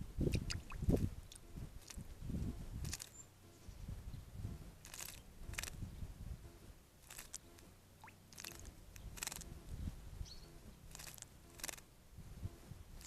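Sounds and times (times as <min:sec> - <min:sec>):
bird splashing water: 0:00.3 - 0:02.0, 0:08.0 - 0:09.4, 0:10.9 - 0:11.8.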